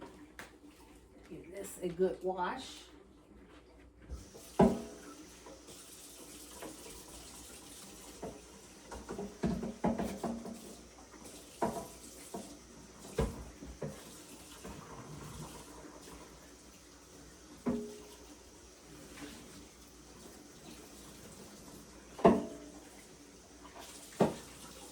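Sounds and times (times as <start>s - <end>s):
tap water running into sink: 4.1s - 24.9s
tray knocking against sink: 9.0s - 10.7s, 22.2s - 22.6s.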